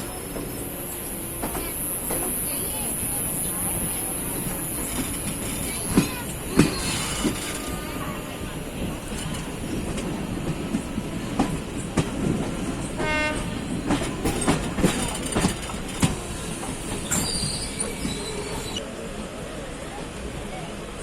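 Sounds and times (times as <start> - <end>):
train rumbling on track: 0.0 - 21.0.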